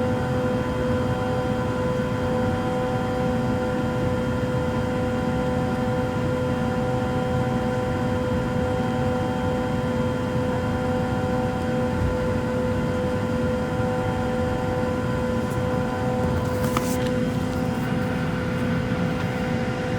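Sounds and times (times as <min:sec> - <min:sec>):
airliner cabin drone: 0:00.1 - 0:19.9
engine and air-conditioning hums: 0:09.2 - 0:19.9.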